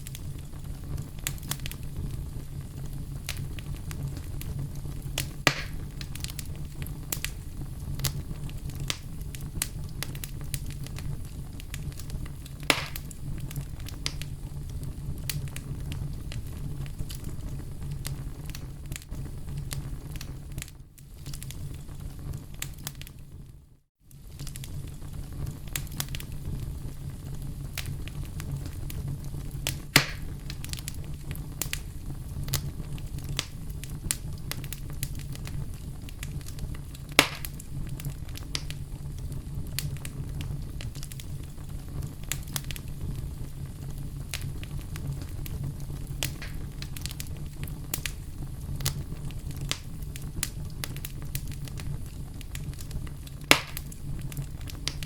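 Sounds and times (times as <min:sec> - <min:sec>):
campfire crackling: 0:00.0 - 0:23.5, 0:24.1 - 0:55.0
sharp loud pops: 0:05.5 - 0:05.8, 0:12.7 - 0:13.1, 0:30.0 - 0:30.3, 0:37.2 - 0:37.5, 0:46.4 - 0:46.6, 0:53.5 - 0:53.8.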